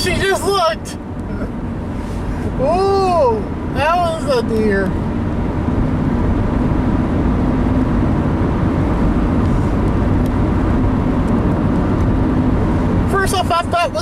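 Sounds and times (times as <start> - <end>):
tyre and engine rumble: 0.0 - 14.0.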